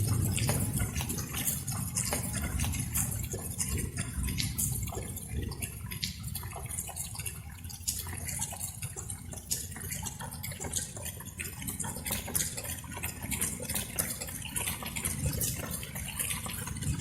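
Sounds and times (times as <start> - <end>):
light rain dripping: 0.0 - 17.0.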